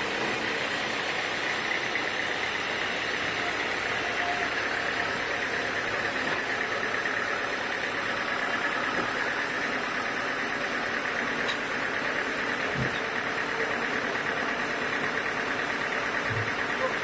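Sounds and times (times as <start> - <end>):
sawmill machinery droning: 0.0 - 17.0.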